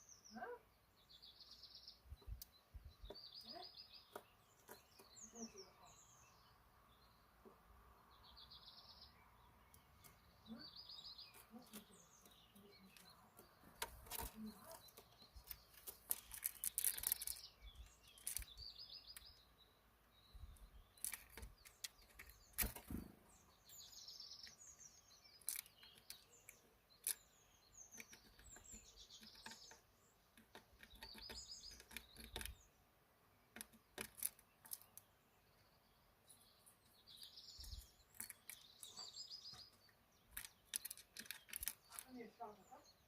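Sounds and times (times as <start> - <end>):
small birds chirping: 0.0 - 43.0
sharp clicks and taps: 11.6 - 17.4, 27.9 - 32.6, 33.5 - 35.0, 40.3 - 42.1.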